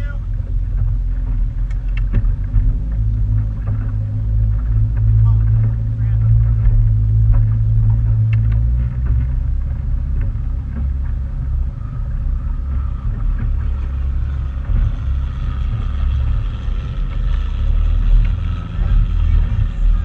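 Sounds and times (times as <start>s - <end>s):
motorboat engine rumble: 0.0s - 20.0s
faint high whine: 3.1s - 20.0s.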